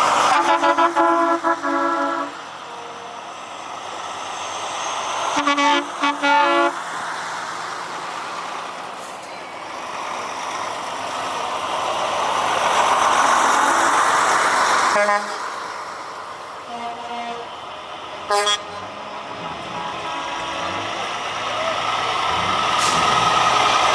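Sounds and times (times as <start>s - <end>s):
truck passing close: 0.0s - 23.9s
truck horn toots: 0.3s - 3.2s, 5.4s - 6.8s, 14.9s - 15.5s, 16.7s - 17.6s, 18.3s - 23.9s.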